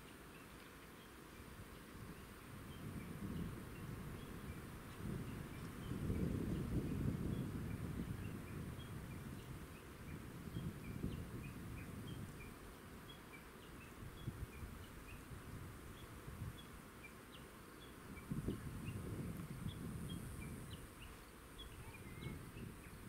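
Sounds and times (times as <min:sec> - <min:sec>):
small bird chirping: 0:15.9 - 0:23.0.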